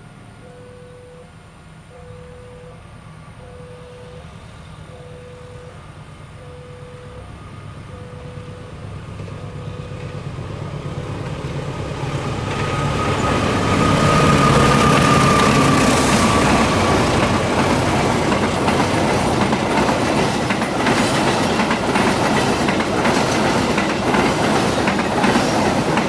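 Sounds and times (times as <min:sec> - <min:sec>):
train rumble: 0:01.2 - 0:26.0
level crossing warning bell: 0:04.9 - 0:10.4.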